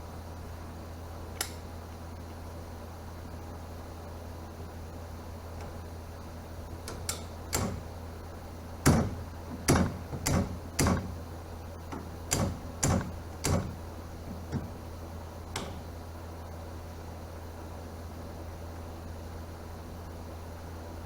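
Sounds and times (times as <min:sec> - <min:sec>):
steady low hum: 0:00.0 - 0:21.0
sharp knocks and clanks: 0:06.9 - 0:07.9, 0:08.8 - 0:11.2, 0:11.9 - 0:14.8, 0:15.5 - 0:15.9.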